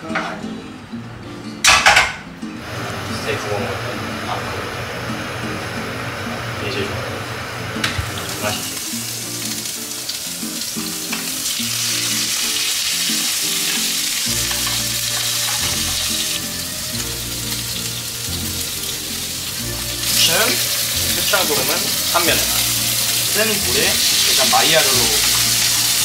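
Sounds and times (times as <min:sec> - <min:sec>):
background music: 0:00.0 - 0:26.0
food sizzling in a pan: 0:02.6 - 0:26.0.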